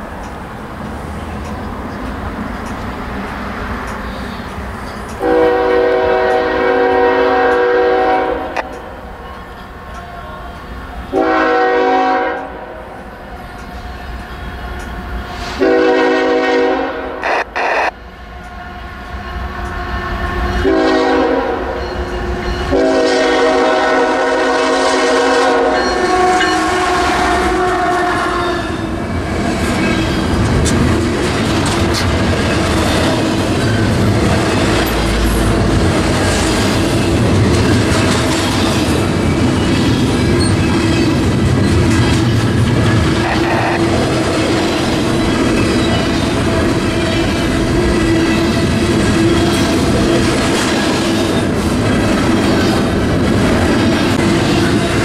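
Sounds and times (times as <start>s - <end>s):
rail cars rattling and clattering: 0.0s - 55.0s
locomotive air horn blasts: 5.2s - 8.8s, 11.1s - 12.8s, 15.3s - 17.9s, 19.8s - 21.8s, 22.7s - 28.9s
locomotive engine rumble: 28.9s - 55.0s.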